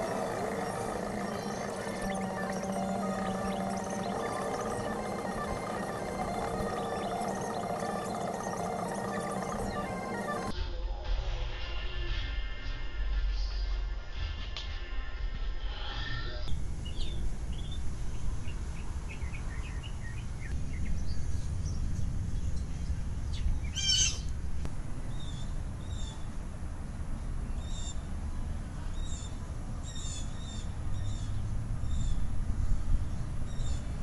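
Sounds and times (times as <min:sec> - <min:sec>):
small birds chirping: 0:00.0 - 0:10.5
low outdoor background rumble: 0:00.0 - 0:11.0, 0:16.0 - 0:34.0.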